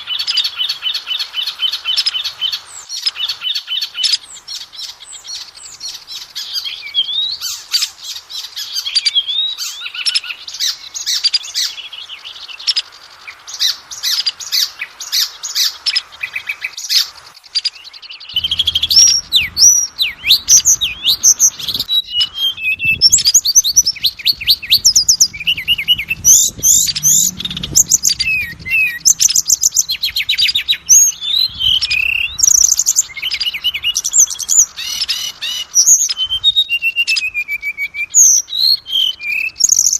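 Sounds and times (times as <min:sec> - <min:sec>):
magpie-robin singing: 0:00.0 - 0:39.9
faint low rumble: 0:18.4 - 0:32.8.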